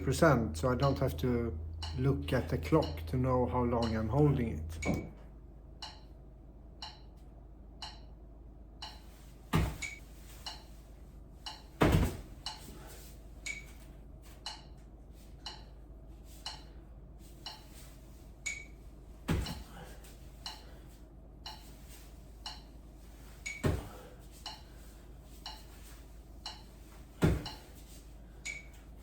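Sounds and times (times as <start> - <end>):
metronome beeping: 1.8 - 5.1, 18.4 - 18.8, 28.4 - 28.8
thuds of handstand kickups: 9.5 - 10.0, 11.8 - 12.4, 19.2 - 19.8, 27.2 - 27.7.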